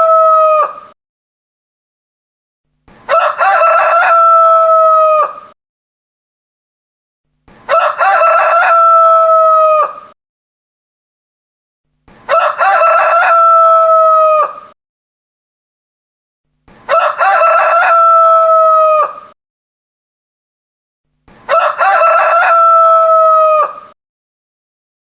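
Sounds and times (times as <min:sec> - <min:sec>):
rooster crowing: 0:00.0 - 0:00.9, 0:03.1 - 0:05.6, 0:07.7 - 0:10.2, 0:12.3 - 0:14.8, 0:16.9 - 0:19.4, 0:21.5 - 0:24.0.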